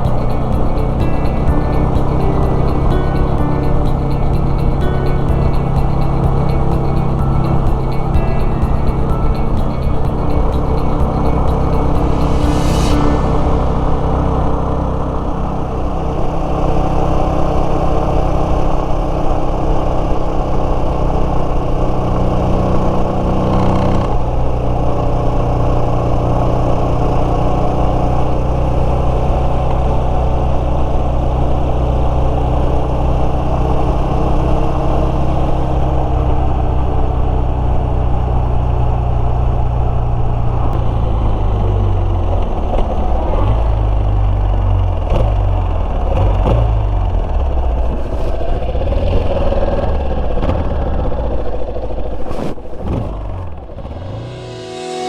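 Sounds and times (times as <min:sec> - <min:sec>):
motorcycle engine running: 0:00.0 - 0:12.9, 0:40.8 - 0:55.0.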